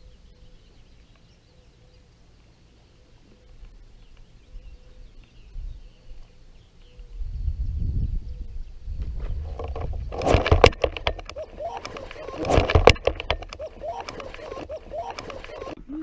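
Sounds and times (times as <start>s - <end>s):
kayak paddle splashing and knocking: 9.5s - 15.8s.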